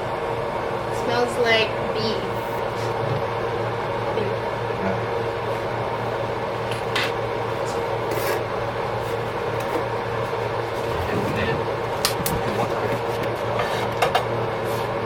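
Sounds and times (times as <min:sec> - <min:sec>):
low hum: 0:05.9 - 0:13.6.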